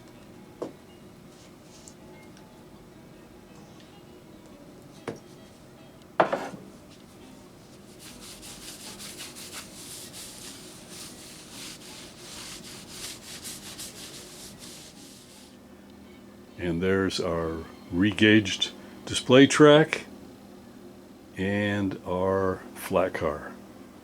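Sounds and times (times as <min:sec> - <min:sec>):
rubbing strokes on wood: 0:07.7 - 0:15.6.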